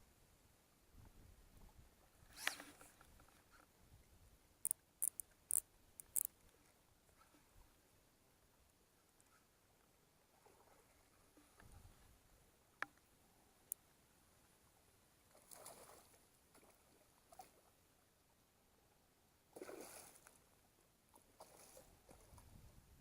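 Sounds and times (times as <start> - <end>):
brief rustles: 2.3 - 3.6.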